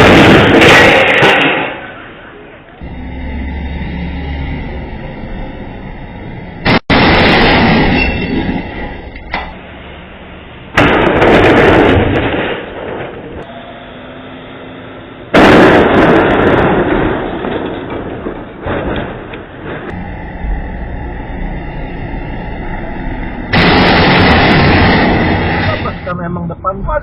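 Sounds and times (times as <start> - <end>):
vehicle crash impacts: 0.0 - 2.4, 6.6 - 9.6, 10.7 - 13.5, 15.3 - 21.4.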